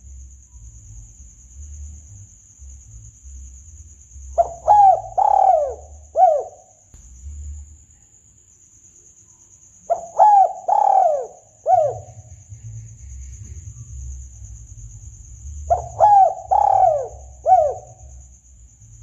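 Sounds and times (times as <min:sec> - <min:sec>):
dove cooing: 0:04.4 - 0:06.7, 0:09.9 - 0:12.4, 0:15.6 - 0:18.2.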